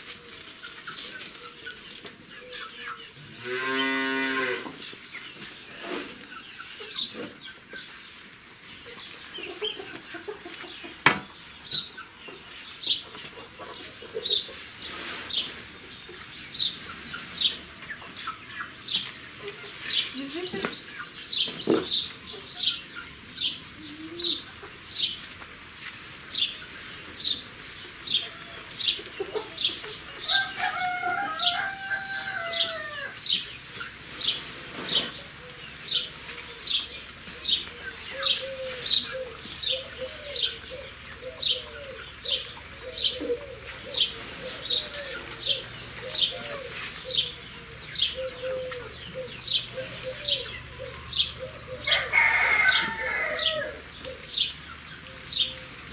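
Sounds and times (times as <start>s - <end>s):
hens clucking: 0.0s - 55.9s.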